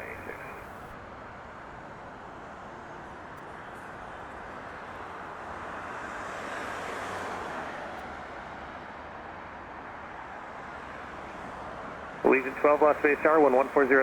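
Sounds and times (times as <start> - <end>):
distant jet engine roar: 0.0 - 1.0, 12.2 - 14.0.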